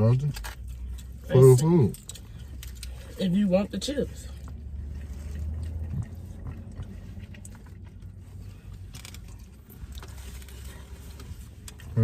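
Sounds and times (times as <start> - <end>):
low rumble inside a car: 0.0 - 12.0
person chewing: 4.2 - 12.0.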